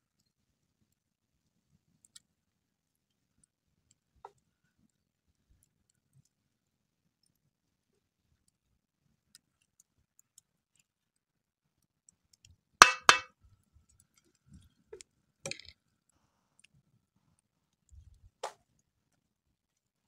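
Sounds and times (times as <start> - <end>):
utensil clinking against pot: 12.8 - 13.3.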